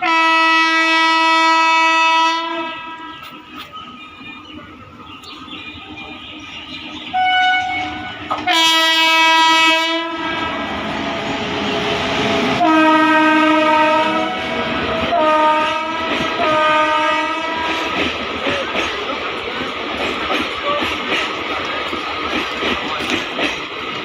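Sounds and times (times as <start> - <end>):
locomotive horn blasts: 0.0 - 3.2, 7.1 - 11.5, 12.4 - 18.0
passing train: 0.0 - 24.0.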